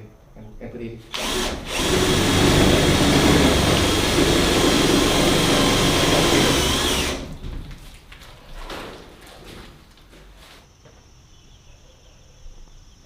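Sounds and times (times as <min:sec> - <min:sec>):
electric power tool whining: 0:01.1 - 0:07.4.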